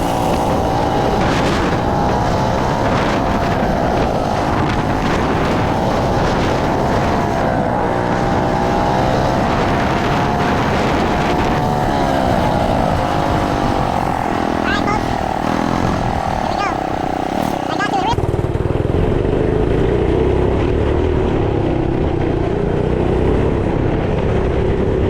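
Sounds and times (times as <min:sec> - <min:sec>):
wind buffeting microphone: 0:00.0 - 0:19.4
small motorbike engine running: 0:00.0 - 0:25.0.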